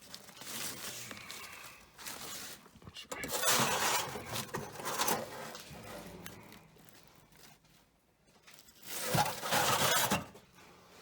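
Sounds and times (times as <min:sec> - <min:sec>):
paper rustling and scraping: 0:00.0 - 0:07.9, 0:08.5 - 0:10.4
loud scrape: 0:03.3 - 0:05.6, 0:08.9 - 0:10.4.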